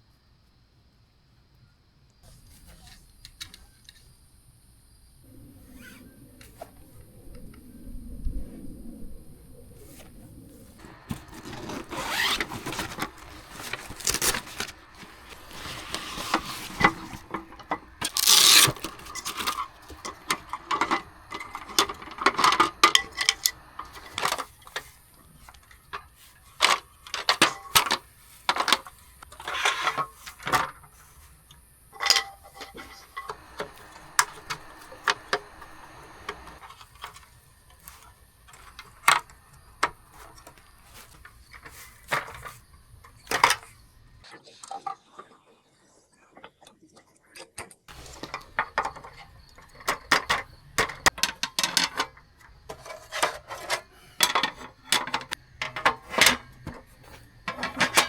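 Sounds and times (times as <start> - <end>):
gear clattering: 10.8 - 31.2
gear knocks clicks and rubbing: 10.8 - 43.8.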